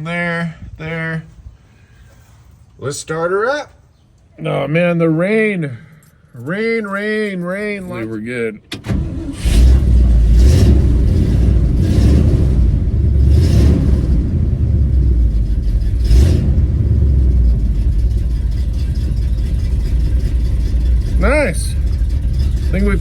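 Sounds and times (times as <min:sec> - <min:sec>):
pickup truck engine idling: 0:07.8 - 0:23.0
engine throttle blips: 0:08.6 - 0:23.0.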